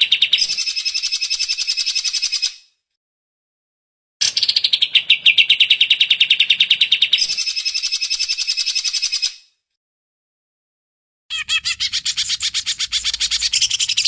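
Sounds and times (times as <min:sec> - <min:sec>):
bird singing a fast trill: 0:11.3 - 0:14.0.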